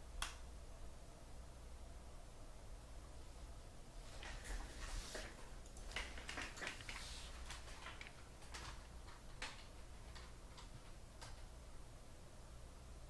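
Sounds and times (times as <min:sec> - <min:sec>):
steady low hum: 0:00.0 - 0:13.0
trading cards rustling: 0:04.2 - 0:10.7.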